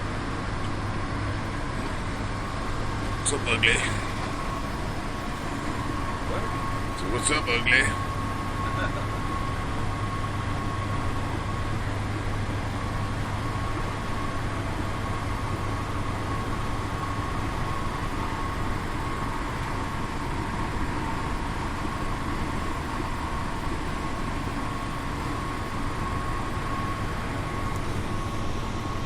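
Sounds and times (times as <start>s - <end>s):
bus engine hum: 0.0s - 29.0s
faint high whine: 0.0s - 29.0s.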